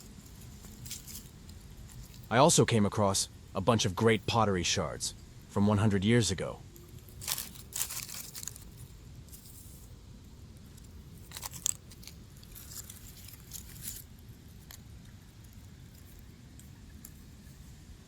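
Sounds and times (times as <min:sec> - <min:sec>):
faint clicks scrapes and crunches: 0:00.0 - 0:02.4, 0:06.8 - 0:10.0, 0:10.6 - 0:17.6
low background rumble: 0:00.0 - 0:18.0.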